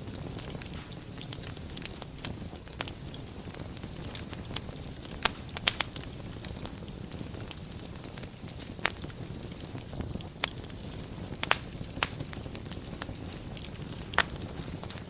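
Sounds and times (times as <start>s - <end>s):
fire crackling pops: 0.0s - 15.0s
fire low rush: 0.0s - 15.0s.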